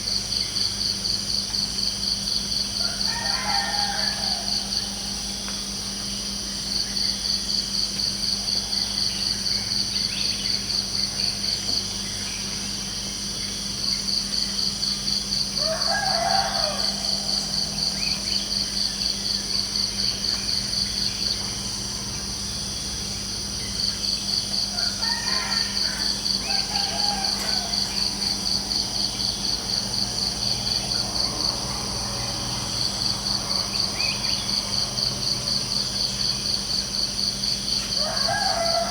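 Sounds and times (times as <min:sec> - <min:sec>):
crickets trilling: 0:00.0 - 0:38.9
high insect chorus: 0:00.0 - 0:38.9
rooster crowing: 0:02.8 - 0:05.3, 0:15.6 - 0:18.3, 0:24.6 - 0:32.8, 0:37.8 - 0:38.9.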